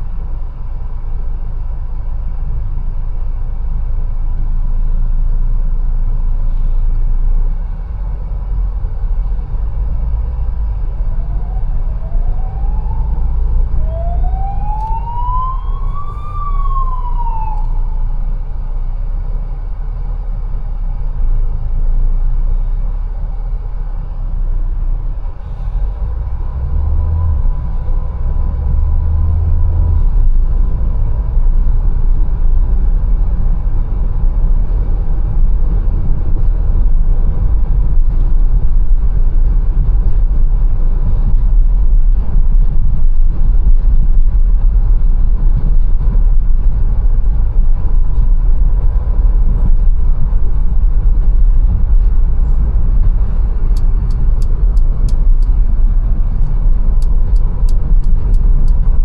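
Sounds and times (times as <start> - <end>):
car engine and road noise: 0.0 - 59.0
light ticks: 53.7 - 55.6, 56.3 - 58.9.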